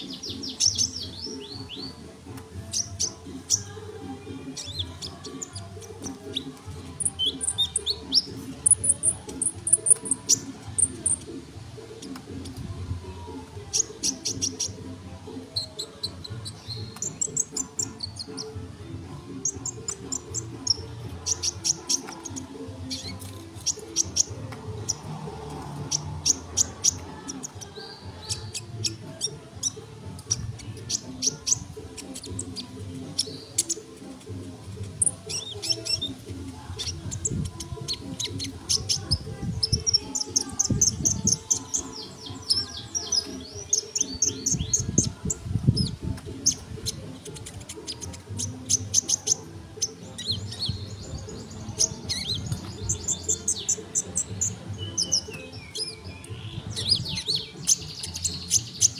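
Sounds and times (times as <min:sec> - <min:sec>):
sunbird chirping and trilling: 0:19.4 - 0:34.0, 0:34.9 - 0:58.9.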